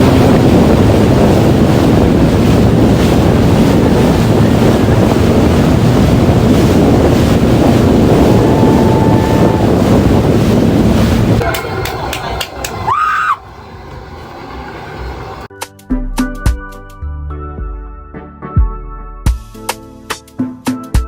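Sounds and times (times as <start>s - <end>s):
jet ski engine: 0.0s - 15.5s
rushing water: 0.0s - 15.5s
wind buffeting microphone: 0.0s - 15.5s.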